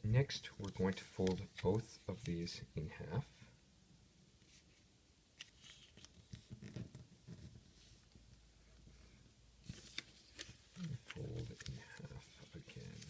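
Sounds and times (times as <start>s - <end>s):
paper rustling and folding: 0.4s - 2.3s, 5.4s - 8.0s, 9.6s - 13.0s.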